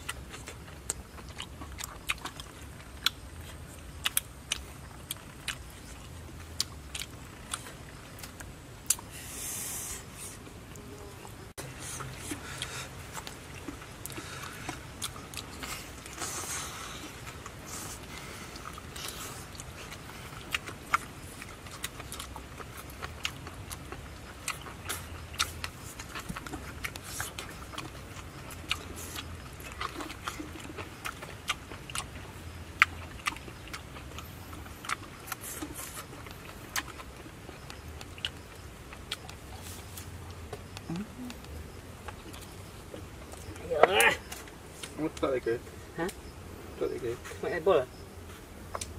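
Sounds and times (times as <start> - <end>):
chewing and lip-smacking: 0.0 - 9.1, 10.1 - 45.4
short hissing sounds: 9.1 - 10.4.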